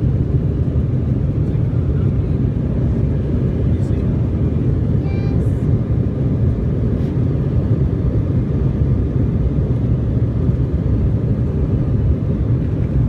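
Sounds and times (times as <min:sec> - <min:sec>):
jet engines and airflow rumble: 0:00.0 - 0:13.0.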